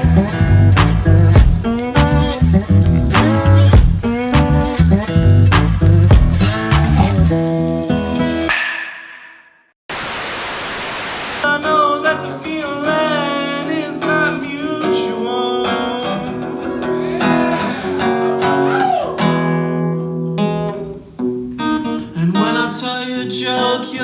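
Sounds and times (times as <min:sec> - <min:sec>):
acoustic guitar: 0:00.0 - 0:08.5, 0:11.4 - 0:24.0
person singing: 0:11.4 - 0:19.1, 0:21.8 - 0:24.0.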